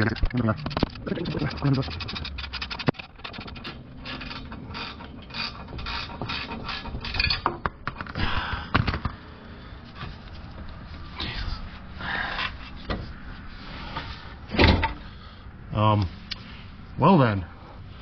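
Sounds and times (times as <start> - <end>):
hand ratchet clicking: 0.0 - 3.5.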